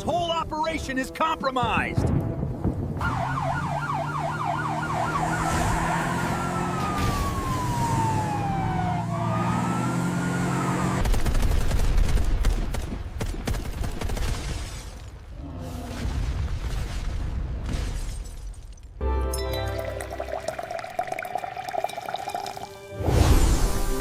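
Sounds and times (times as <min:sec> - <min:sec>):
background music: 0:00.0 - 0:04.0, 0:19.0 - 0:24.0
police siren: 0:03.0 - 0:11.0.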